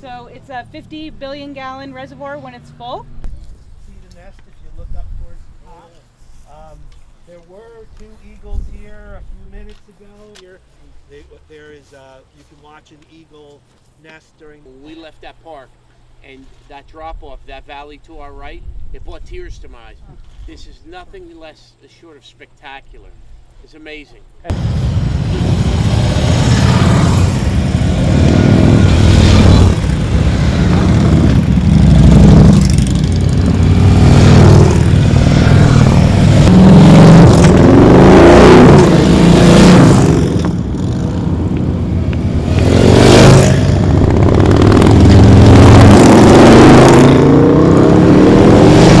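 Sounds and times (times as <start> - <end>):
motorcycles riding past: 24.5 - 49.0.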